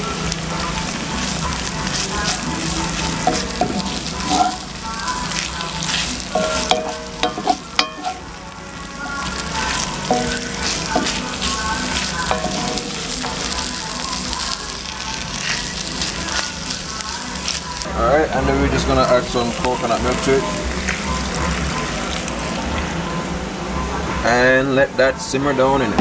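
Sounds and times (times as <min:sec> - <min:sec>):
food sizzling in a pan: 0:00.0 - 0:24.4
wooden spoon scraping a pan: 0:03.1 - 0:04.7, 0:05.9 - 0:08.3.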